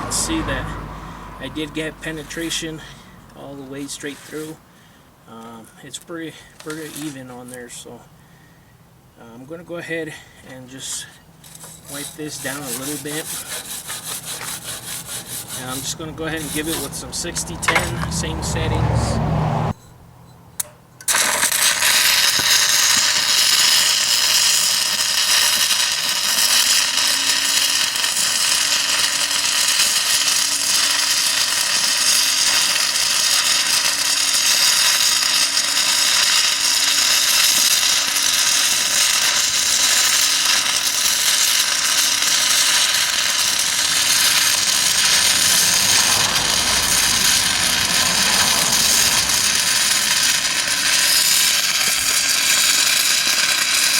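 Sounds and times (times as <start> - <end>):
welding arc crackling: 0.0 - 0.6, 11.9 - 18.7, 21.1 - 53.9.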